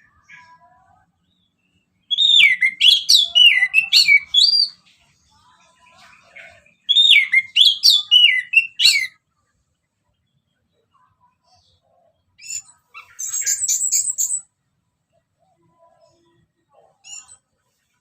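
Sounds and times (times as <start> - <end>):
thrush singing whistled notes: 1.4 - 4.8, 6.5 - 9.2, 12.4 - 14.5.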